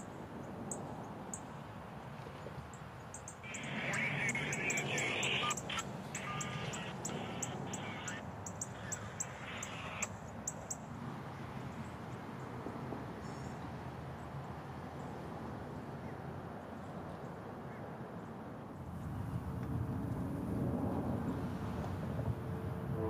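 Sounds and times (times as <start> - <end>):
birds chirping: 3.0 - 10.8.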